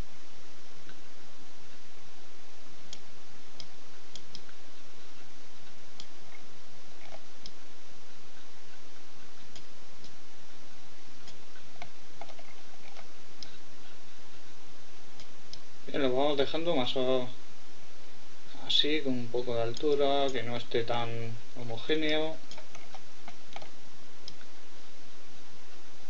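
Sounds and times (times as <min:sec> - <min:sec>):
microphone hiss: 0:00.0 - 0:26.0
computer mouse clicking: 0:02.9 - 0:04.6, 0:05.6 - 0:06.4, 0:07.0 - 0:07.6, 0:09.4 - 0:10.2, 0:11.2 - 0:13.6, 0:22.0 - 0:24.5.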